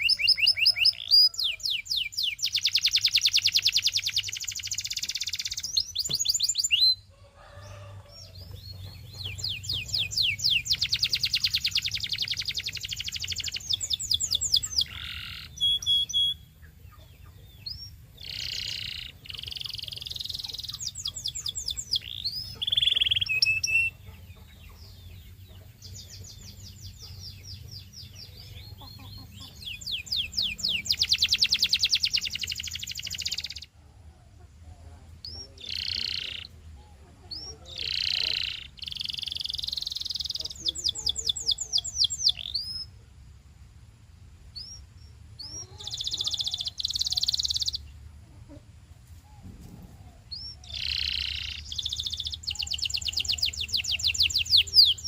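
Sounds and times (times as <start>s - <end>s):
canary singing trills: 0.0s - 43.0s, 44.5s - 55.0s.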